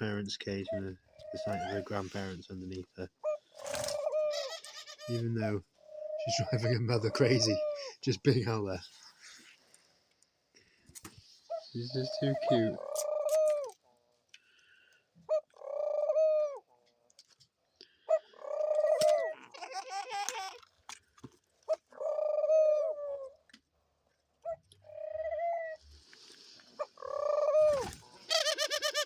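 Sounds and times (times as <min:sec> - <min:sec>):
doves cooing: 0:00.0 - 0:08.8, 0:11.5 - 0:16.8, 0:17.9 - 0:20.7, 0:21.6 - 0:23.5, 0:24.3 - 0:29.0.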